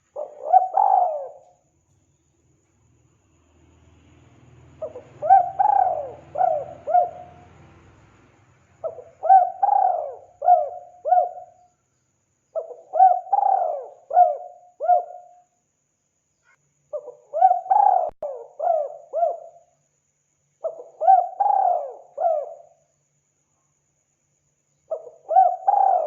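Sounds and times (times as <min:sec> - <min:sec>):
dove cooing: 0:00.0 - 0:01.6, 0:04.8 - 0:07.5, 0:08.8 - 0:11.6, 0:12.6 - 0:15.3, 0:17.0 - 0:19.5, 0:20.6 - 0:22.7, 0:24.9 - 0:26.0.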